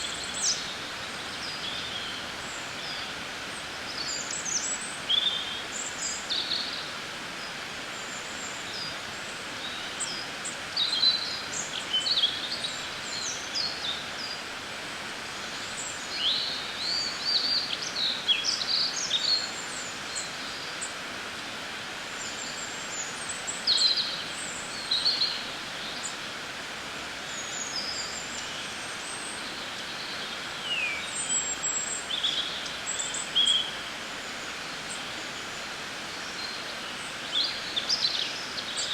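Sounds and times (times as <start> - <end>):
outdoor ambient hiss: 0.0 - 38.9
songbirds chirping: 21.9 - 38.9.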